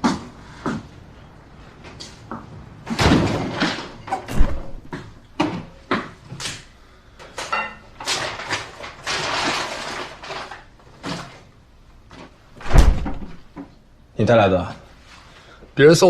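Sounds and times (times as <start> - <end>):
heavy thump: 4.3 - 5.1, 12.6 - 13.5.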